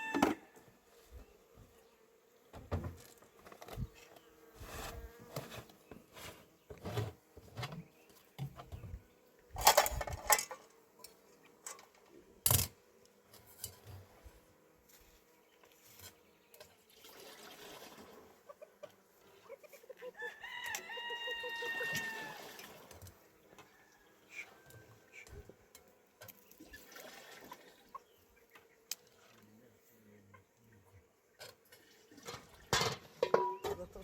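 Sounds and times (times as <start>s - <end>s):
chicken calling: 19.4s - 22.7s.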